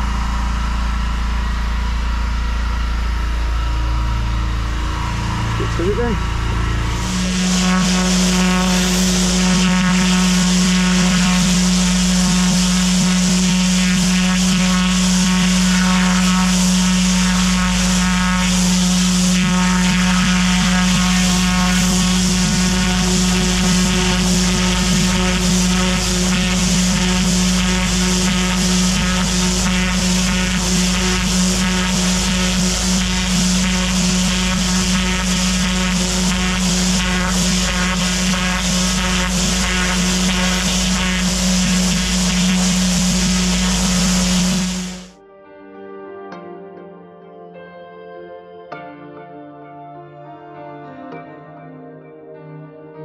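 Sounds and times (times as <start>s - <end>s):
pressure washer engine running: 0.0s - 45.2s
water spray hissing: 5.6s - 45.1s.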